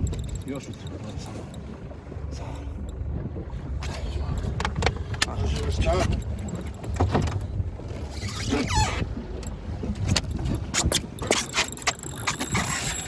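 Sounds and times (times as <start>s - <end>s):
sharp clicks and knocks: 0.0s - 1.7s
boat motor rumble: 0.0s - 13.0s
water: 0.0s - 13.0s.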